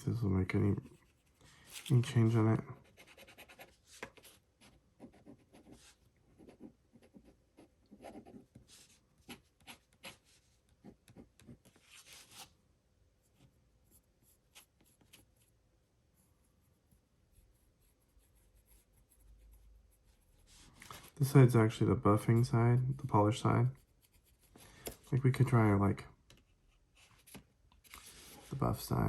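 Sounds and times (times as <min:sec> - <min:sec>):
fountain pen scratching on paper: 0:00.8 - 0:12.4, 0:23.7 - 0:24.6.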